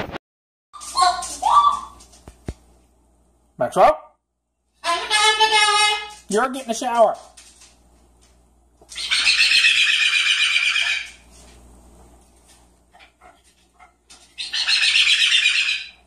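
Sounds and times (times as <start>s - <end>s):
parrot screeching: 8.9s - 11.2s, 14.4s - 16.0s.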